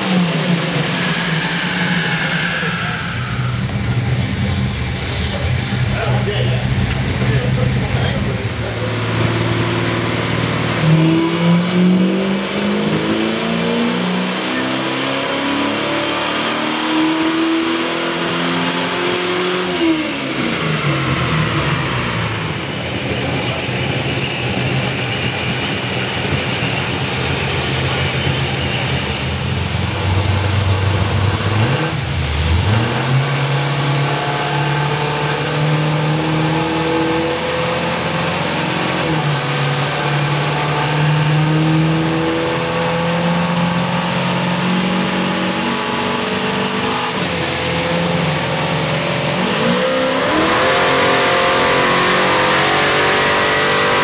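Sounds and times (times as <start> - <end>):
car engine idling: 0.0 - 13.1, 20.1 - 43.0
car engine revving at full throttle: 0.0 - 54.0.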